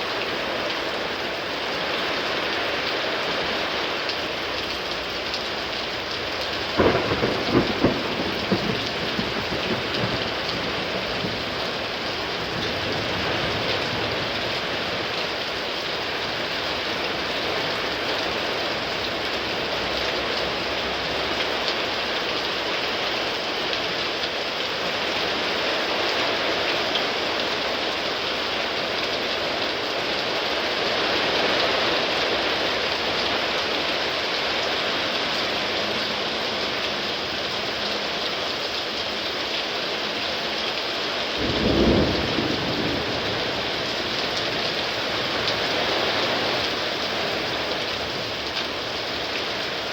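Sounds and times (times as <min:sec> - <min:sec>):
heavy rain pouring: 0:00.0 - 0:49.9
loud thunder crack: 0:06.8 - 0:14.5, 0:41.4 - 0:44.6.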